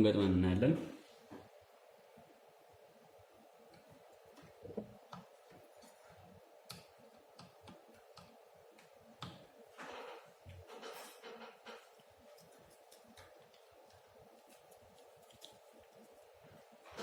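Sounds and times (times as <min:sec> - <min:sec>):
small tools clicking on circuit board: 0:06.6 - 0:09.5.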